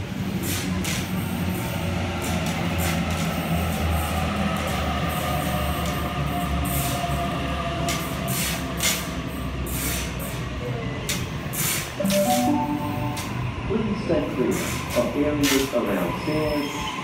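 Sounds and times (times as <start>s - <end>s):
electric train rolling past: 10.9s - 17.0s.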